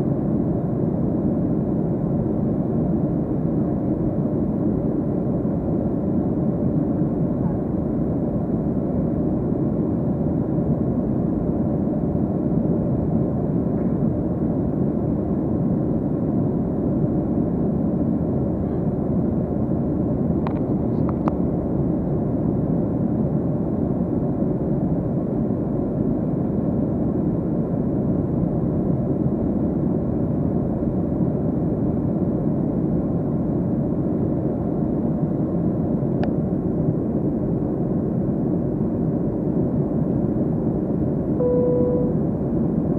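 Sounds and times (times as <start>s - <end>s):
airplane cabin engine rumble: 0.0s - 42.9s.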